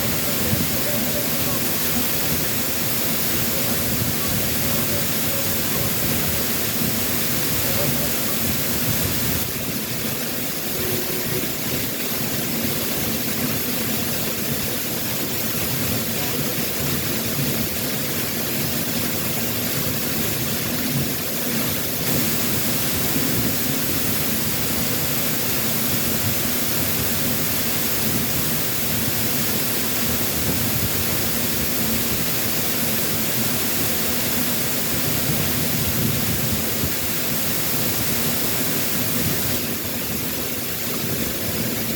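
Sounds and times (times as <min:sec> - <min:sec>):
waterfall pouring: 0:00.0 - 0:41.9.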